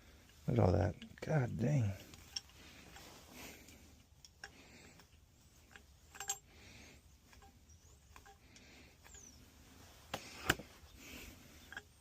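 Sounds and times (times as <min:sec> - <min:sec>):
handling noises: 0:00.1 - 0:12.0
metal tools clicking: 0:01.9 - 0:03.1, 0:04.2 - 0:06.5, 0:07.3 - 0:09.4, 0:11.1 - 0:12.0
ringing metallic clink: 0:05.7 - 0:06.5.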